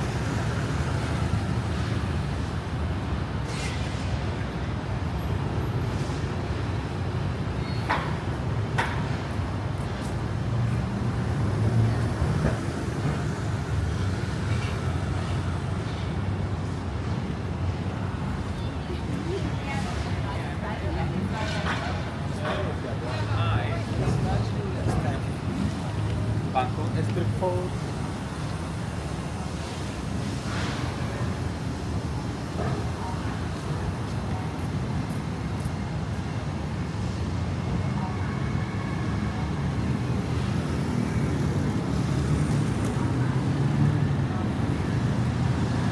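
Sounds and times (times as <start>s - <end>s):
passing traffic rumble: 0.0s - 45.9s
faint indistinct voices: 18.4s - 28.0s.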